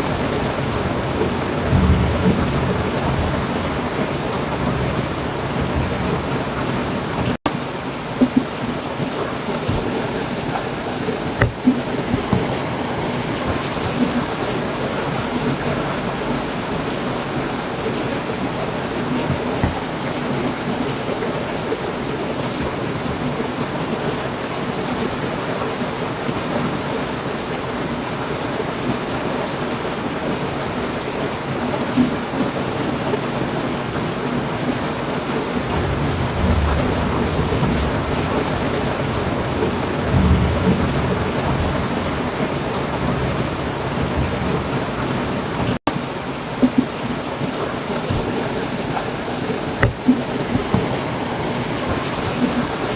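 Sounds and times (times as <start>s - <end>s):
thunder rumbling: 0.0s - 7.4s, 35.4s - 45.8s
heavy rain falling: 0.0s - 52.9s.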